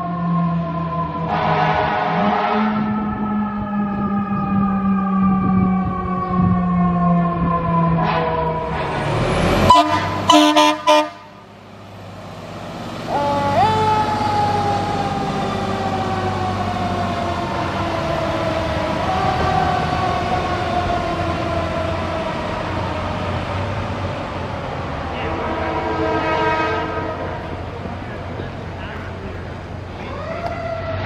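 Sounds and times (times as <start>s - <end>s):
truck engine: 0.0s - 31.0s
fire truck horn blasts: 1.1s - 4.1s, 8.0s - 11.5s, 13.1s - 16.9s, 25.1s - 27.9s
siren winding up and down: 2.2s - 11.0s, 13.1s - 23.4s, 30.0s - 31.0s.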